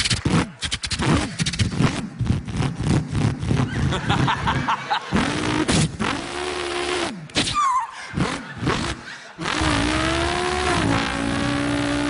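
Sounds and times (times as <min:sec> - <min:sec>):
man imitating engine revs: 0:05.1 - 0:07.4, 0:08.0 - 0:12.0.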